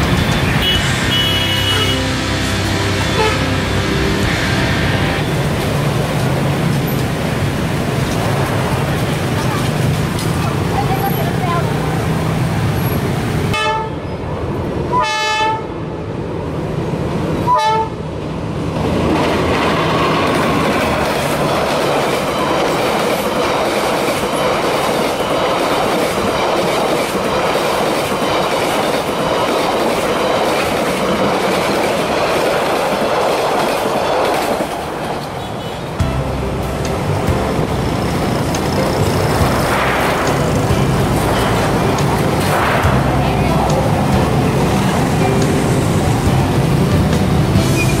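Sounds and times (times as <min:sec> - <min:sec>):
train wheels rumbling on rails: 0:00.0 - 0:13.6, 0:18.1 - 0:48.0
train horn blasts: 0:00.1 - 0:05.4, 0:13.5 - 0:14.0, 0:14.9 - 0:15.7, 0:17.5 - 0:18.0.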